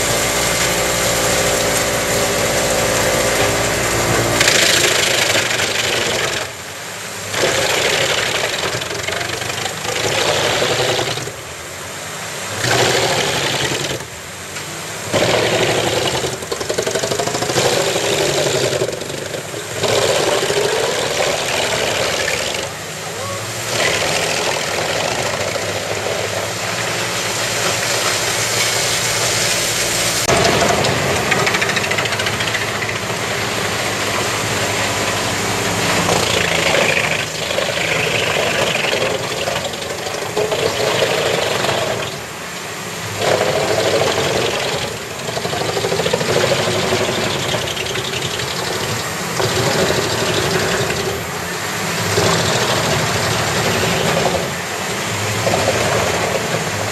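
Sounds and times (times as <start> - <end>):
wood chipper chipping: 0.0 - 11.5, 12.4 - 56.9
tractor engine droning: 0.0 - 56.9.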